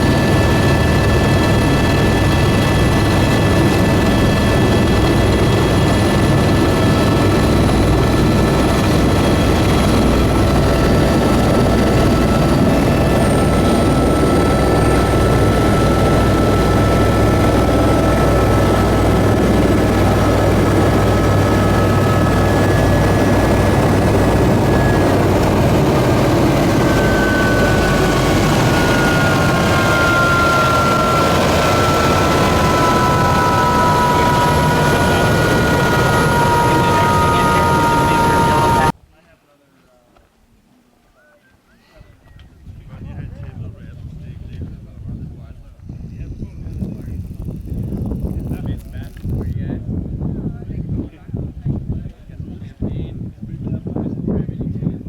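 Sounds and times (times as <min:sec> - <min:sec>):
aircraft engine drone: 0:00.0 - 0:38.9
high whining tones: 0:00.0 - 0:38.9.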